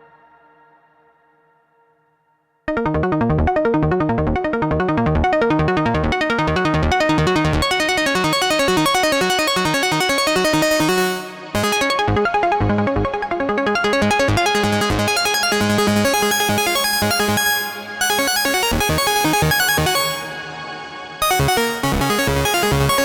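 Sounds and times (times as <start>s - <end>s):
synth bass line: 2.7s - 20.6s
synthesizer sequenced pattern: 2.7s - 23.0s.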